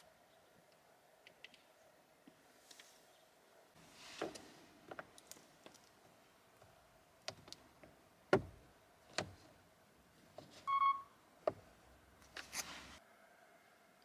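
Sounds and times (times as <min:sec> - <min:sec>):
plastic trim clicks and knocks: 0:08.4 - 0:09.4
short electronic beep: 0:10.7 - 0:11.1.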